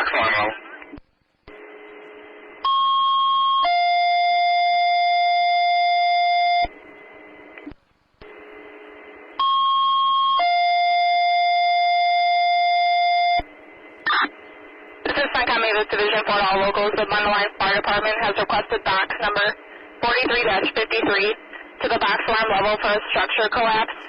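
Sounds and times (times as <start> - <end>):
radio hiss: 0.0 - 2.6, 13.6 - 24.0.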